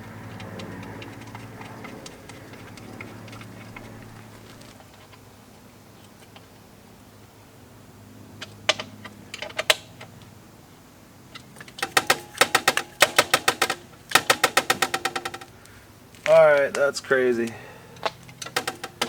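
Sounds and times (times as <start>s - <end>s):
ratchet wrench clicking: 11.6s - 15.5s, 18.4s - 19.0s.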